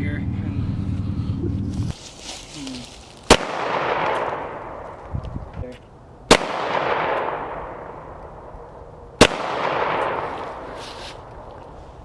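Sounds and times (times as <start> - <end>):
pistol shots echoing: 3.3 - 4.9, 6.3 - 8.2, 9.2 - 10.7.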